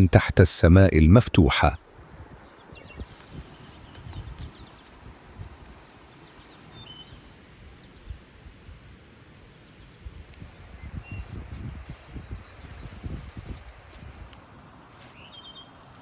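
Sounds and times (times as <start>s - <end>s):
small birds chirping: 0.0s - 8.6s, 9.2s - 16.0s
wind on microphone: 1.8s - 5.8s, 10.0s - 14.4s.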